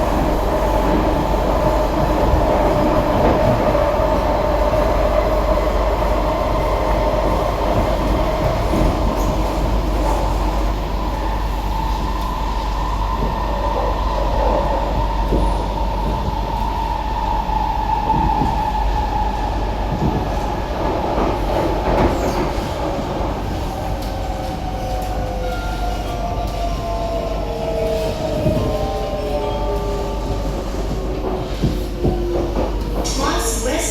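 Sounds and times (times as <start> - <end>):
metro train rail rumble: 0.0 - 33.9
train high whine: 21.9 - 33.9.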